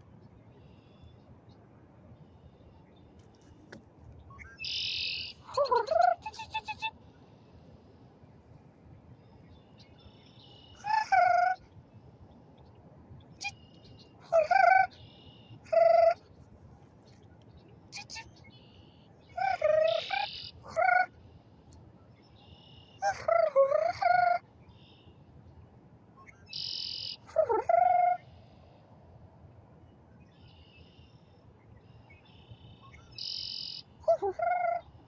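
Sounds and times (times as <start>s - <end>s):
buzzy high bird trill: 18.0s - 20.6s.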